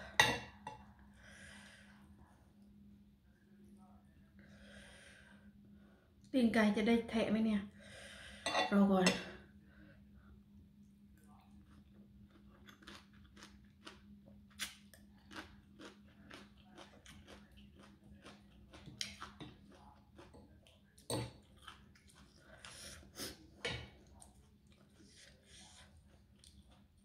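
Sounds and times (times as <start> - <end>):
chewing noodles with wet mouth sounds: 11.2 - 27.0.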